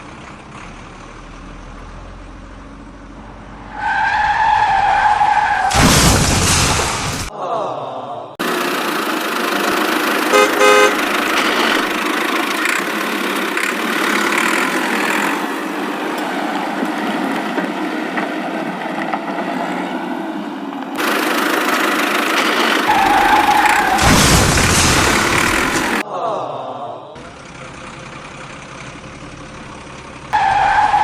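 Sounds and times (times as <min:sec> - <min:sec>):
vehicle running: 0:00.0 - 0:07.3, 0:08.4 - 0:26.0, 0:27.2 - 0:31.0
horn honk: 0:10.3 - 0:11.8.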